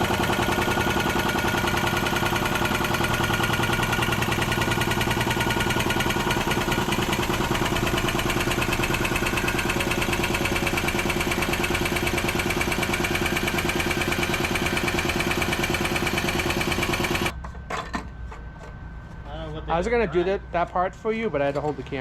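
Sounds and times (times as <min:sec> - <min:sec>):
air impact wrench hammering: 0:00.0 - 0:17.3.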